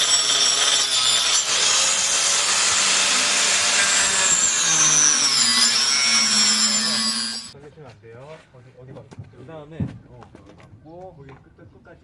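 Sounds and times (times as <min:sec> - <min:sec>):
power tool motor whining: 0:00.0 - 0:07.6.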